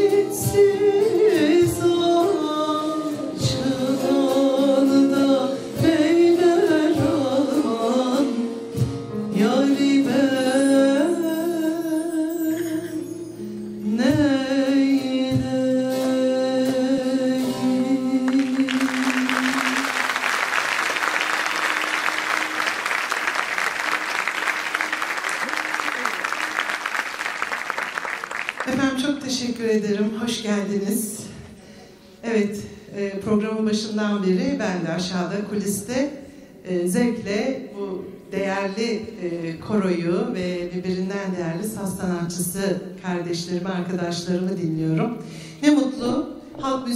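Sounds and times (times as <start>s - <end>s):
plucked string ensemble: 16.6s - 29.0s
audience applause: 18.3s - 28.8s.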